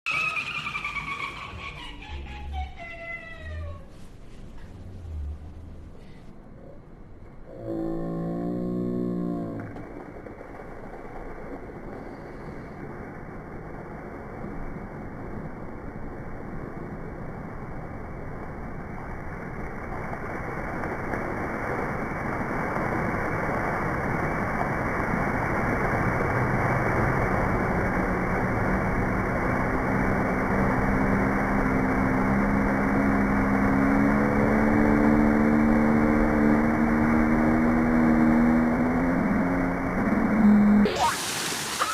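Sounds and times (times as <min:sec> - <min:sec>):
low engine-like rumbling drone: 0:00.1 - 0:41.1
humming tone: 0:27.2 - 0:41.1.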